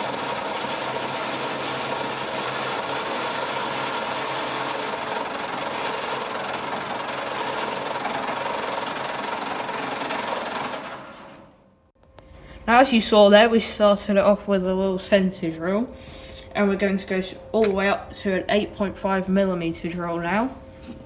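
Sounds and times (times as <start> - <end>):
lathe humming and whining: 0.0 - 11.6.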